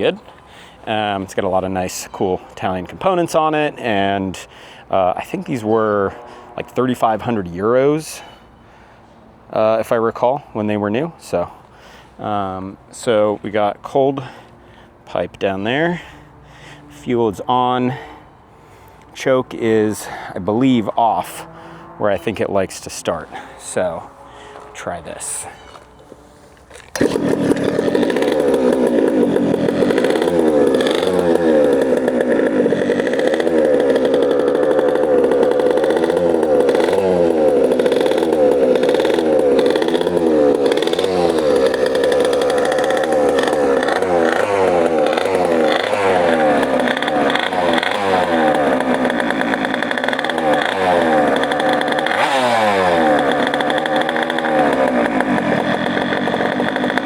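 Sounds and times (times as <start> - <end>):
small two-stroke engine revving: 5.1 - 7.4, 19.8 - 57.0.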